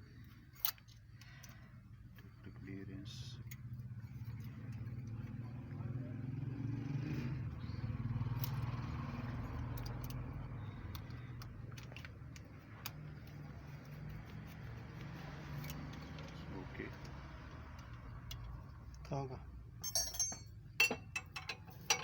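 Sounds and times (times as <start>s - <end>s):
hand tools clicking on metal: 19.8s - 22.0s.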